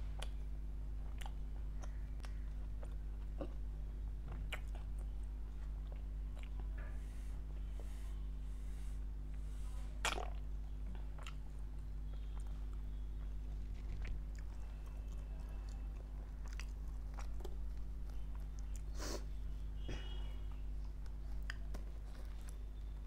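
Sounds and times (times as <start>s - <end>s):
low electrical hum: 0.0s - 23.0s
chewing with wet mouth clicks: 0.2s - 6.8s, 10.0s - 18.9s, 20.9s - 22.6s.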